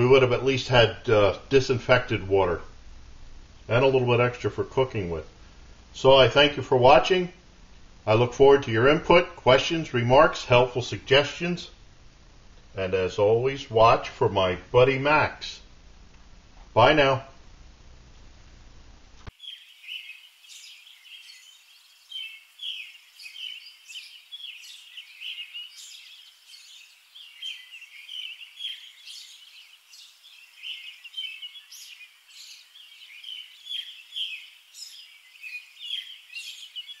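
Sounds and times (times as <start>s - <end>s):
small birds chirping: 19.2s - 37.0s.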